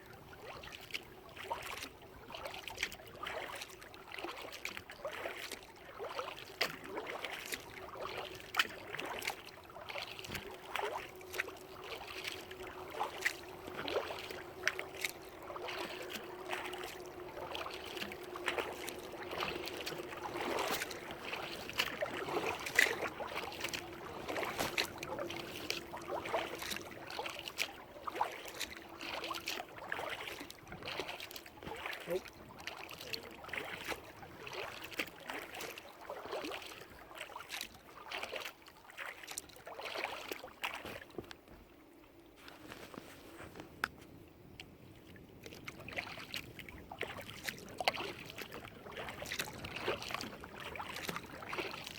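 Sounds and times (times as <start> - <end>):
kayak paddle splashing: 0.0 - 51.9
water dripping and lapping: 0.0 - 51.9.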